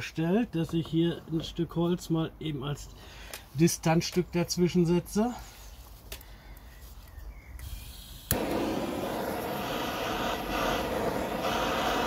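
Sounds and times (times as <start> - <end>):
heat gun fan blowing: 7.6 - 12.0.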